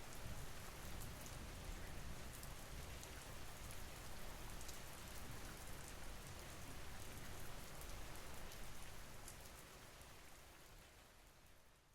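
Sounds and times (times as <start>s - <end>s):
steady rain: 0.0s - 11.9s.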